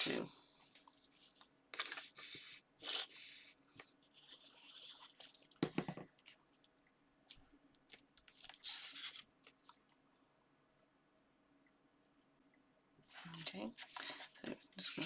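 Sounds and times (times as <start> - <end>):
knock on table: 5.6 - 6.1
paper rustling: 7.9 - 9.8.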